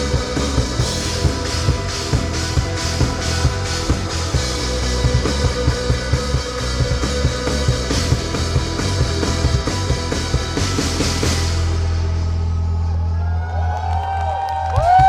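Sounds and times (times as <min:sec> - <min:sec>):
drum kit beat: 0:00.0 - 0:12.0
rock band playing live: 0:00.0 - 0:12.6
sustained guitar: 0:00.0 - 0:13.2.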